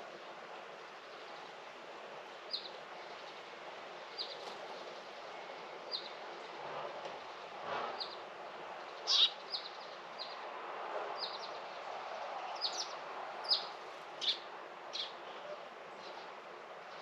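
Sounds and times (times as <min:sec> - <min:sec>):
steady background hiss: 0:00.0 - 0:17.0
small songbird chirping: 0:09.1 - 0:10.4.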